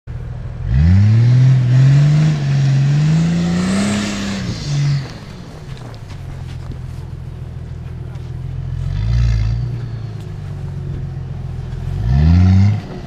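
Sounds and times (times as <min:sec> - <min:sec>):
car engine revving: 0:00.1 - 0:13.0.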